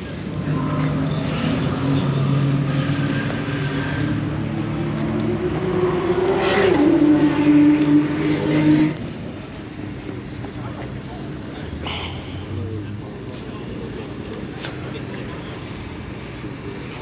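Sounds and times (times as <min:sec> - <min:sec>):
car engine running hard: 0:00.0 - 0:17.0.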